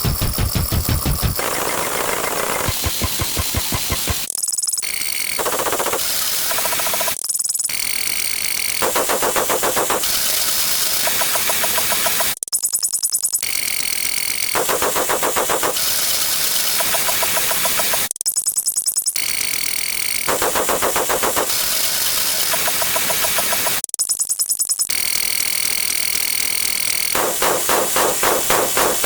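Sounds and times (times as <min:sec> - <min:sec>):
distorted electronic sound effects: 0:00.0 - 0:04.3.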